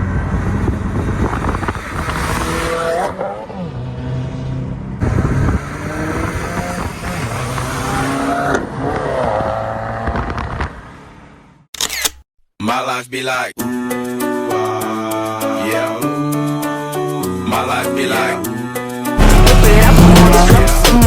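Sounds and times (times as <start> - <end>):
car engine revving hard: 0.0 - 10.4, 19.2 - 21.0.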